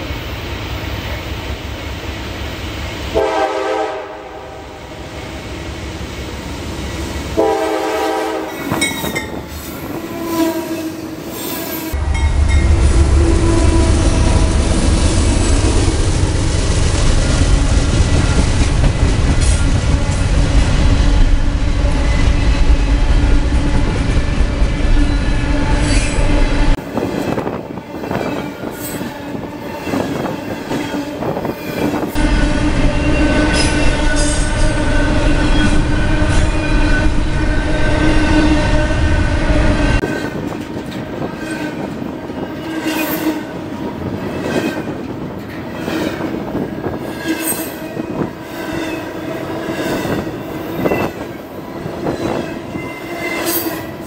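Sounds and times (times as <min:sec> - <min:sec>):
train horn long blasts: 0:03.1 - 0:05.0, 0:07.3 - 0:14.9, 0:18.1 - 0:26.8, 0:28.0 - 0:44.2
freight cars rolling on rails: 0:11.3 - 0:54.0
locomotives rumbling past: 0:11.9 - 0:27.4.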